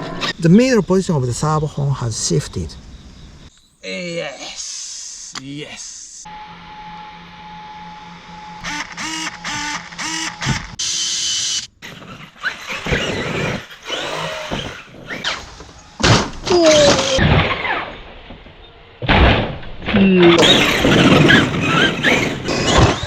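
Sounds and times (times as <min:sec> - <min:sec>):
electric motor whining: 0:06.3 - 0:18.4, 0:20.2 - 0:23.0
rc car whirring bursts: 0:08.0 - 0:16.0, 0:20.4 - 0:23.0.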